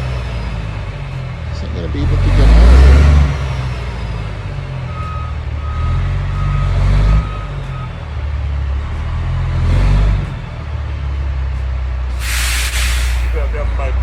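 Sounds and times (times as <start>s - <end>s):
truck engine revving: 0.0s - 14.0s
reversing alarm beeping: 3.6s - 8.0s.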